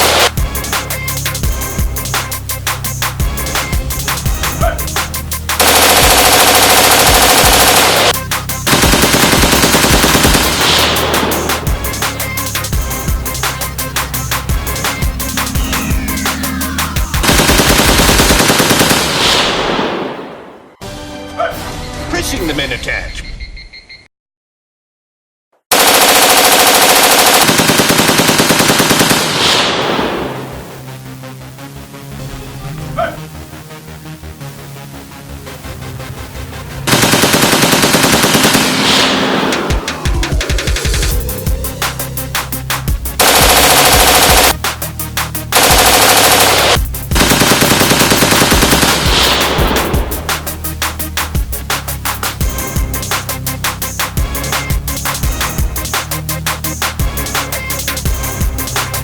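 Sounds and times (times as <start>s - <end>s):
rapid automatic gunfire: 0.0s - 0.3s, 5.6s - 11.8s, 17.2s - 20.1s, 25.7s - 30.4s, 36.9s - 39.9s, 43.2s - 44.7s, 45.5s - 50.6s
drum and bass music: 0.0s - 19.6s, 30.3s - 59.0s.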